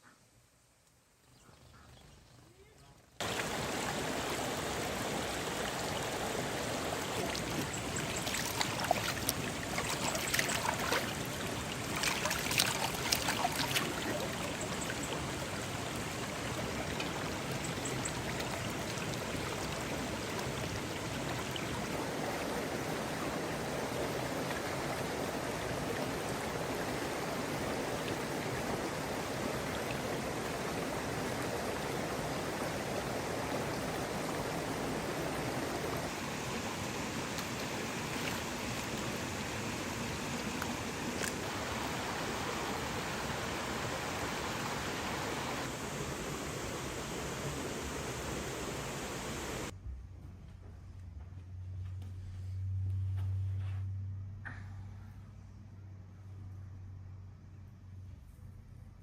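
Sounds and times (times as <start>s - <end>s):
stream water rushing: 3.2s - 49.7s.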